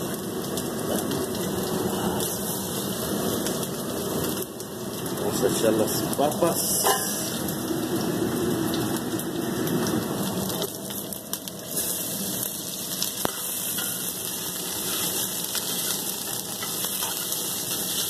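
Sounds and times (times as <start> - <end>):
potatoes sizzling in hot oil: 0.0 - 18.0
metal spoon stirring: 14.7 - 18.0.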